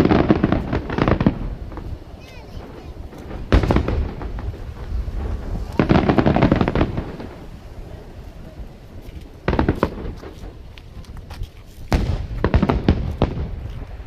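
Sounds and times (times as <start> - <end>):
echoing booms: 0.0 - 10.7, 11.9 - 14.0
fireworks bangs and crackles: 0.0 - 14.0.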